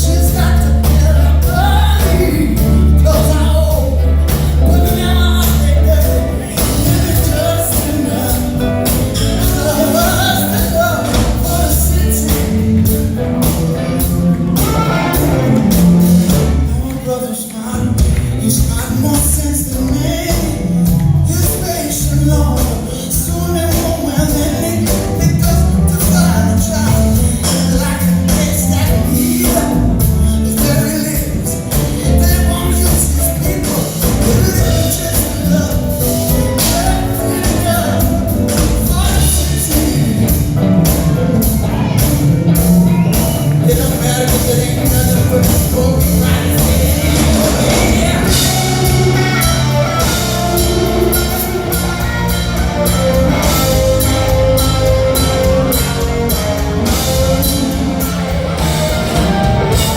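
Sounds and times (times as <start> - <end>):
drum hits: 0.0 - 17.0, 18.0 - 59.9
live rock band playing: 0.0 - 59.9
person singing: 0.0 - 59.9.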